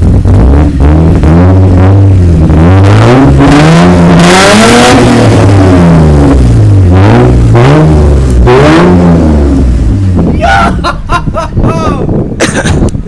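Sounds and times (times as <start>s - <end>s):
loud car engine revving: 0.0s - 11.7s.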